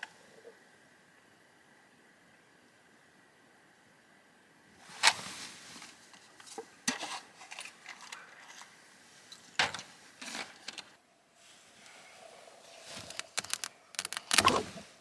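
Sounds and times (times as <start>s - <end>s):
objects clicking and snapping: 13.1s - 14.6s.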